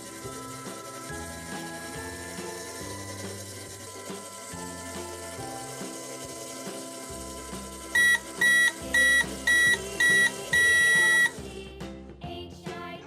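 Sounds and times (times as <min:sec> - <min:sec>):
background music: 0:00.0 - 0:13.0
microwave timer beeping: 0:07.9 - 0:11.4.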